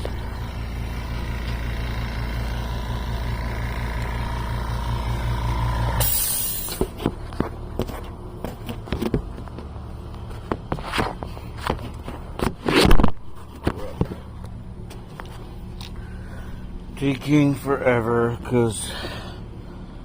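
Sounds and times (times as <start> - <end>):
motor humming with thin whine: 0.0 - 20.0
brief hiss: 6.0 - 6.8.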